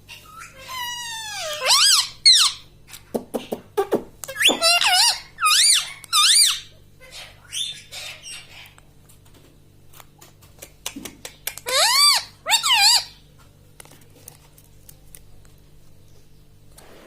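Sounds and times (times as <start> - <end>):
parakeet shrill squeaky calls: 0.1 - 2.6, 4.3 - 8.7, 11.6 - 13.2.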